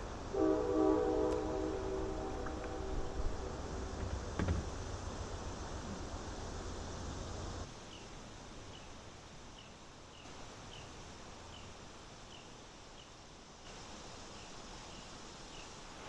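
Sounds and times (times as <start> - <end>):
steady outdoor hiss: 0.0 - 16.0
loud low rumble: 0.5 - 7.1.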